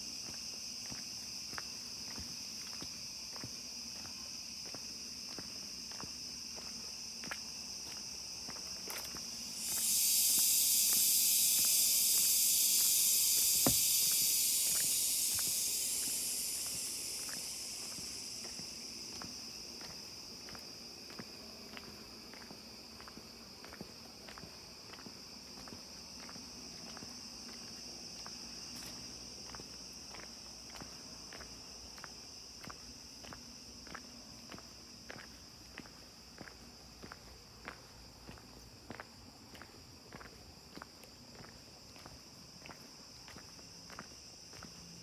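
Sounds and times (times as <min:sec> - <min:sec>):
insects chirring: 0:00.0 - 0:45.0
loud hissing buzz: 0:09.3 - 0:19.2.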